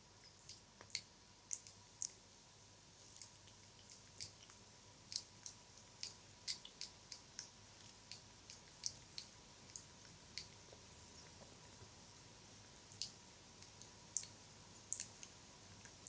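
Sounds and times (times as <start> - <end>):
wet mouth clicks and smacks: 3.2 - 7.5.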